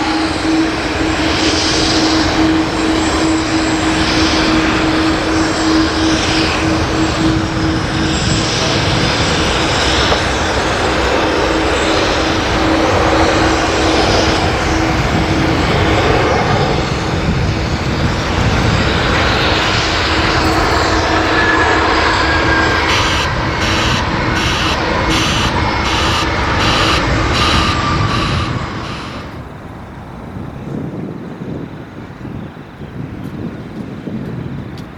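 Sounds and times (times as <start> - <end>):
jet engines rushing: 0.0 - 34.9
low hum: 19.0 - 30.4.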